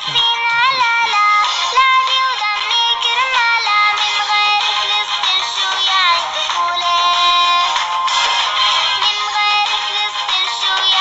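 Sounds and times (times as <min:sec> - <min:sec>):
high-pitched voice singing: 0:00.0 - 0:07.7
backing music: 0:00.0 - 0:11.0.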